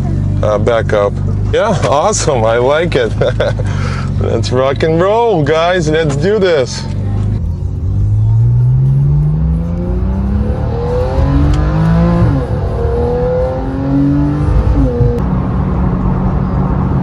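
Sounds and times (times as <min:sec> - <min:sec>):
car engine accelerating: 0:07.0 - 0:17.0.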